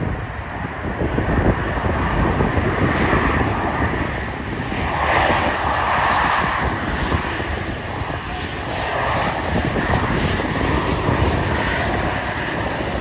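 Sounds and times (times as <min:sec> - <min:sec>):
jet engines passing: 0:00.0 - 0:13.0.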